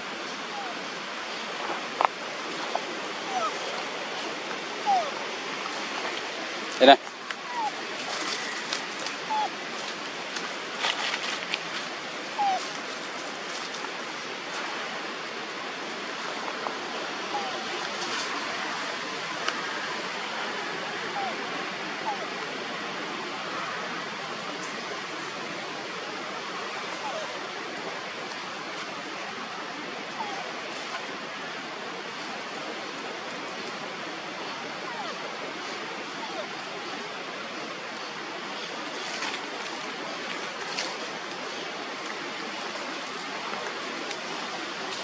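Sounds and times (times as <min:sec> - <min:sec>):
steady background hiss: 0:00.0 - 0:45.0
monkey squeak: 0:12.4 - 0:12.6.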